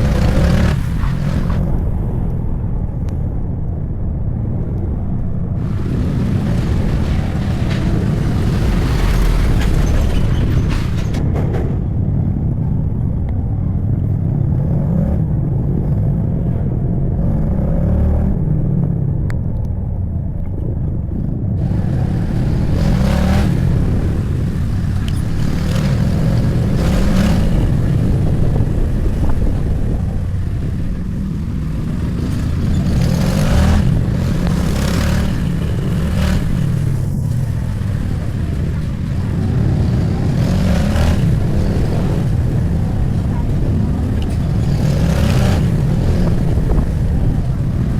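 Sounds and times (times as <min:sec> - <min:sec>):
motorcycle engine rumble: 0:00.0 - 0:17.5, 0:18.5 - 0:47.9
passing traffic hiss: 0:05.6 - 0:11.1, 0:21.6 - 0:47.9.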